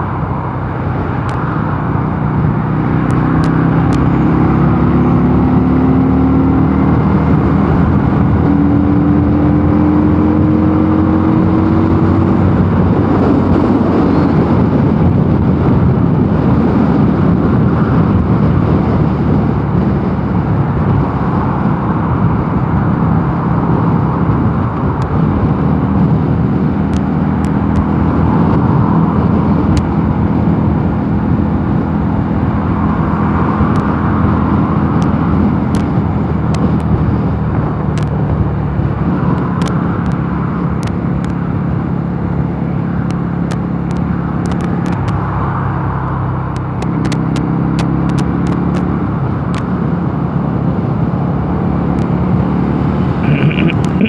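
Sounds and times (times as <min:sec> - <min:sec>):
rushing wind and road noise: 0:00.0 - 0:54.0
motorcycle engine running: 0:48.0 - 0:54.0.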